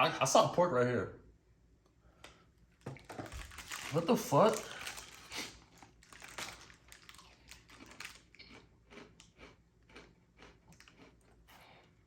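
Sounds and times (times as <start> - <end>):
person chewing crunchy snack: 4.6 - 12.0.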